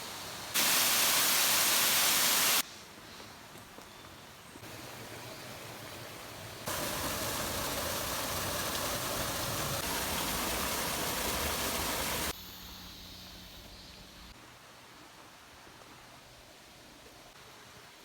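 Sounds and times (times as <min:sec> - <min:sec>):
waterfall rushing: 0:00.6 - 0:02.6, 0:04.6 - 0:12.3.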